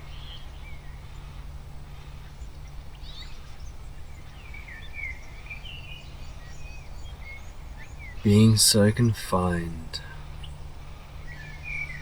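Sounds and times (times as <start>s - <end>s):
birds chirping faintly: 0.1s - 12.0s
steady low hum: 8.2s - 10.2s.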